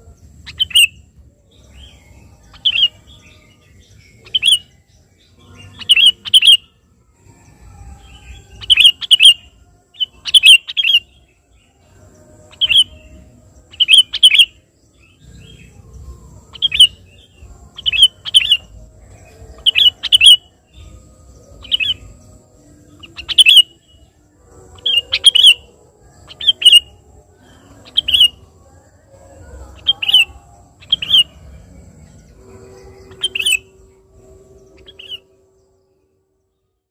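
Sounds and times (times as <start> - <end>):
bulbul bird calling: 0.0 - 3.2, 3.8 - 4.7, 5.5 - 6.7, 8.3 - 9.4, 10.0 - 11.2, 12.5 - 22.2, 22.9 - 28.5, 29.3 - 34.0, 34.7 - 35.3.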